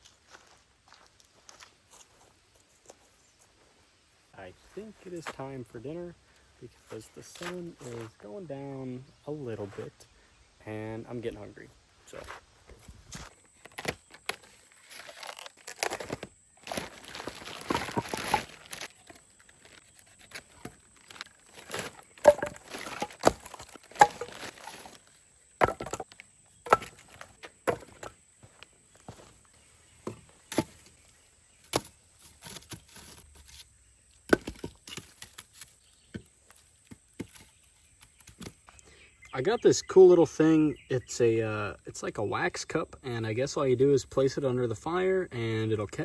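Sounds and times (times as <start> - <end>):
rustling: 12.0 - 38.8
wood pieces knocking together: 16.0 - 19.2, 21.6 - 25.0, 25.6 - 28.2.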